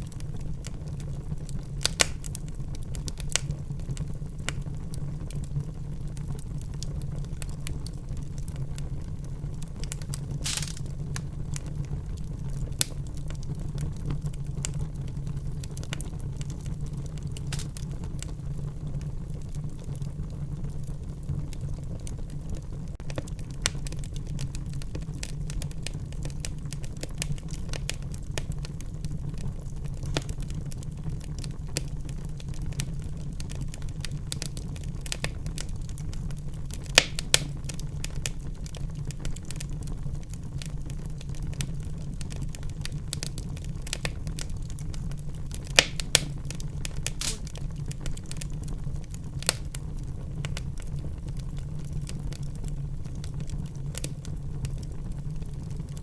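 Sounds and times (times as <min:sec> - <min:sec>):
fire crackling and popping: 0:00.0 - 0:56.0
low rumble of burning: 0:00.0 - 0:56.0
sharp loud snaps: 0:01.9 - 0:02.3, 0:10.4 - 0:10.9, 0:37.0 - 0:37.5, 0:45.8 - 0:46.4, 0:47.0 - 0:47.6.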